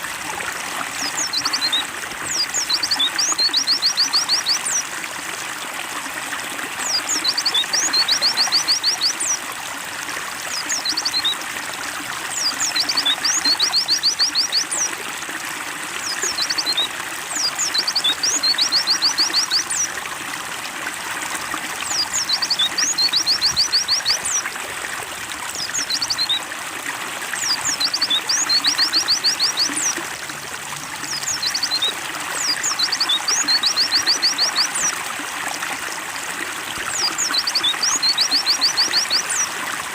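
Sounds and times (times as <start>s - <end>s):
trickling water: 0.0s - 39.9s
bird chirping rapidly: 31.1s - 34.9s.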